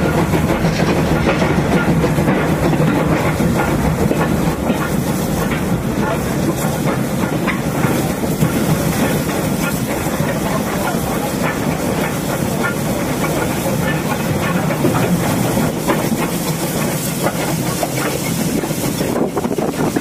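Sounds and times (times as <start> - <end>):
train running: 0.0 - 20.0
wheels clicking over rail joints: 0.0 - 20.0.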